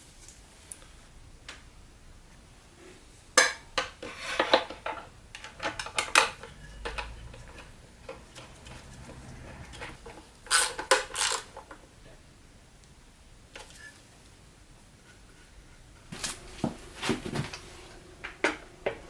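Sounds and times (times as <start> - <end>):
small metal parts clinking: 10.5 - 11.6.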